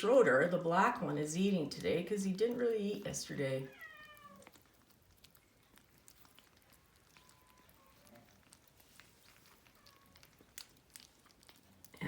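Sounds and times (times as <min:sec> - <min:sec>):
kittens eating clicks: 0:03.9 - 0:12.0.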